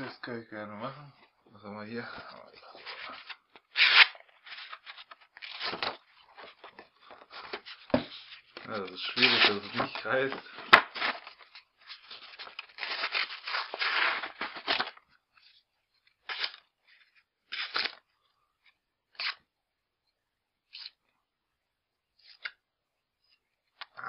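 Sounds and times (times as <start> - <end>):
paper crinkling and tearing: 2.6 - 15.0, 17.5 - 18.0.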